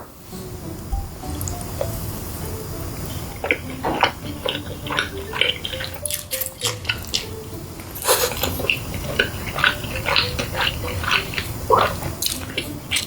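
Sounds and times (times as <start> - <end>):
cutlery clinking on dishes: 3.1 - 13.0
chewing and crunching: 3.3 - 13.0.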